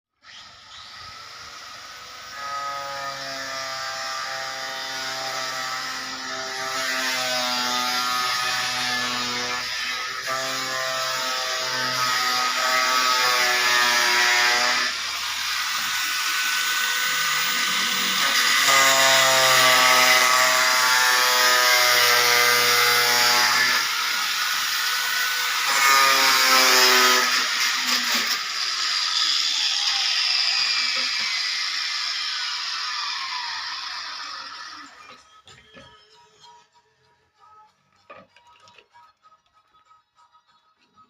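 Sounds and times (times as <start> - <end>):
power drill whine: 0.2 - 7.0, 23.6 - 36.6.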